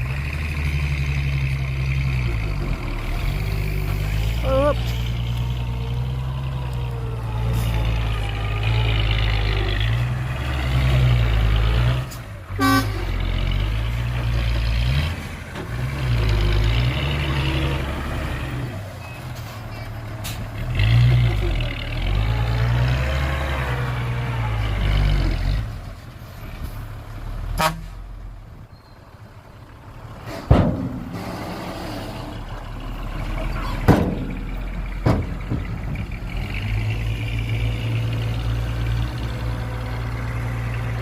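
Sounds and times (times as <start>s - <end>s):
heavy diesel engine rumble: 0.0s - 41.0s
horn toot: 12.6s - 13.1s, 27.6s - 28.0s.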